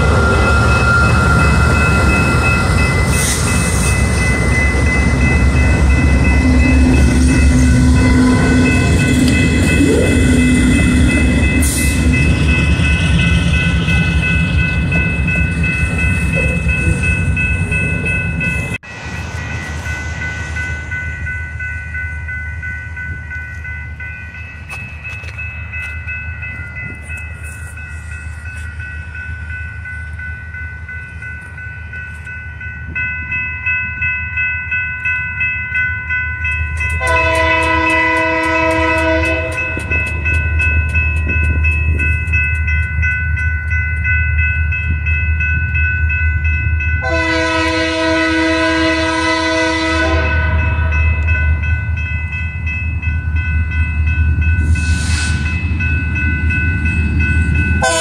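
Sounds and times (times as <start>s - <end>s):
diesel locomotive engine rumble: 0.0s - 58.0s
train air horn blasts: 37.0s - 39.8s, 47.0s - 51.0s, 57.8s - 58.0s.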